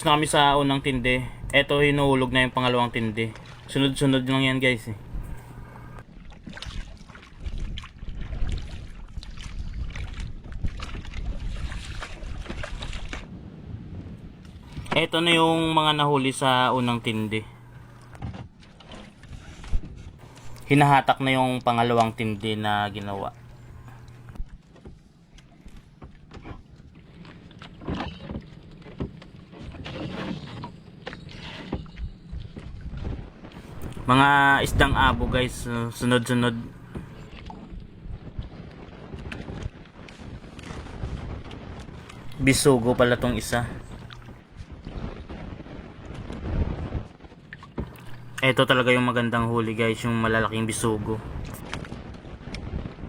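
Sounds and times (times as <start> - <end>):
water around boat: 0.0 - 53.0
wind on microphone: 4.9 - 15.0, 29.8 - 48.4, 51.0 - 53.0
rustling splashes: 5.0 - 13.4.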